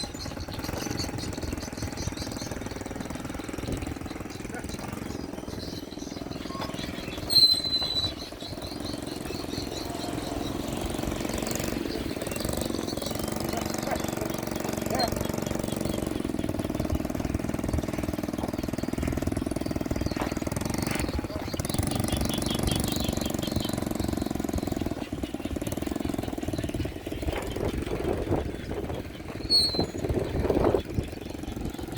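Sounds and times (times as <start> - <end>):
small motorcycle engine chugging: 0.0 - 31.9
high-pitched squeal: 6.4 - 8.3.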